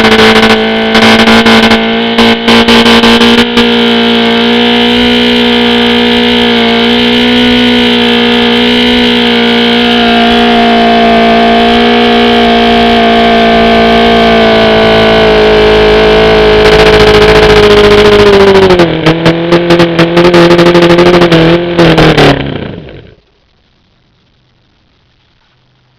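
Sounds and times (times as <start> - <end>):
outboard engine running: 0.0 - 25.9.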